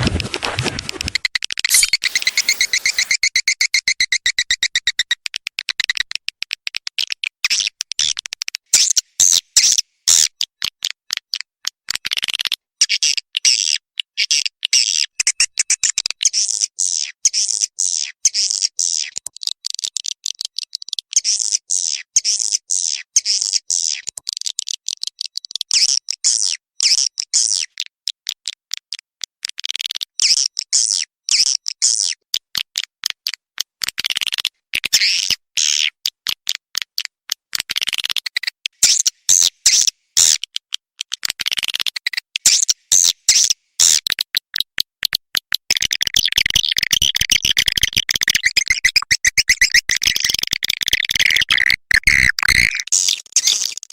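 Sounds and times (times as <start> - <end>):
swiftlet chirps and twitters: 1.2 - 4.5, 46.1 - 53.2.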